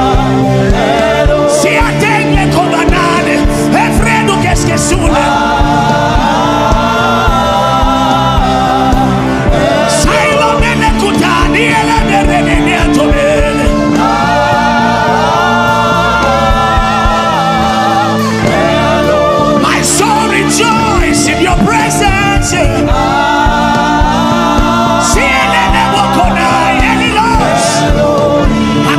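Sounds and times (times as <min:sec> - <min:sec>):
instrumental backing with beat: 0:00.0 - 0:28.9
voices singing in harmony: 0:00.0 - 0:28.9.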